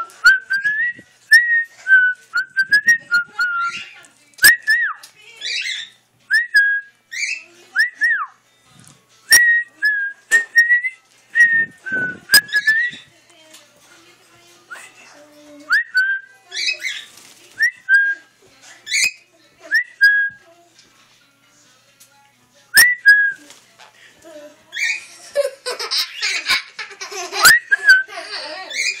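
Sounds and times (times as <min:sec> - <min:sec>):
birds squawking: 0:05.4 - 0:06.0, 0:28.7 - 0:29.0.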